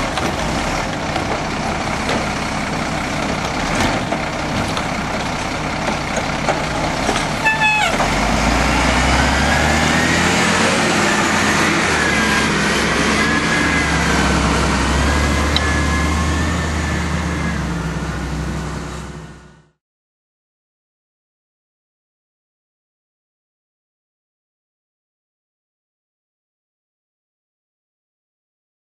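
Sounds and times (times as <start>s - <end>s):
diesel truck engine running: 0.0s - 19.8s
truck horn toot: 7.3s - 8.2s.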